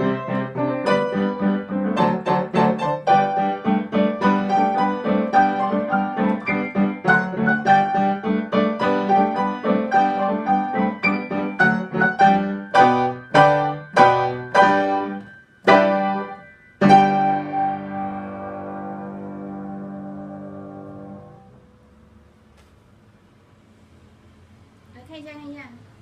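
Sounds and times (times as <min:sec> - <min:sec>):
piano playing: 0:00.0 - 0:22.0.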